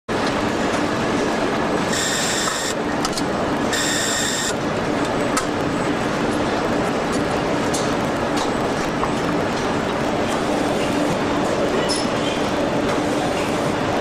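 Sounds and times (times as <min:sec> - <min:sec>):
machinery hum and hiss: 0:00.1 - 0:14.0
electronic warning beeps: 0:01.9 - 0:02.8, 0:03.7 - 0:04.6.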